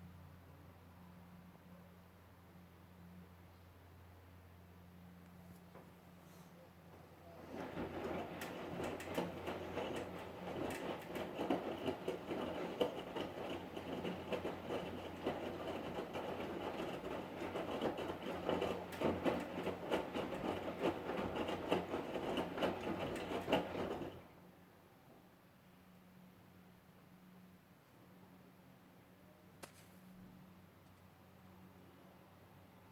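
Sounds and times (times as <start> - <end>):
washing machine drum humming: 7.2 - 24.3
washing machine rattling and knocking: 7.3 - 24.3.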